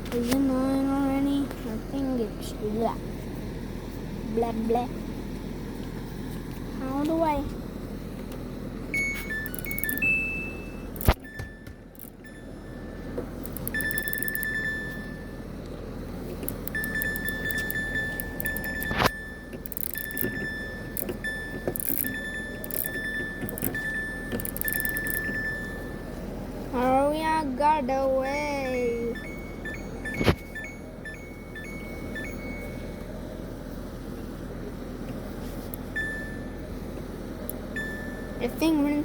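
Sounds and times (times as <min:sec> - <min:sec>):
low hum: 0:07.5 - 0:39.0
washing machine beeps: 0:08.9 - 0:15.6, 0:16.5 - 0:26.5, 0:28.2 - 0:33.5, 0:35.8 - 0:36.9, 0:37.5 - 0:39.0
sharp clicks: 0:09.3 - 0:10.1, 0:11.0 - 0:11.2, 0:12.0 - 0:12.2, 0:13.4 - 0:14.6, 0:16.4 - 0:25.4.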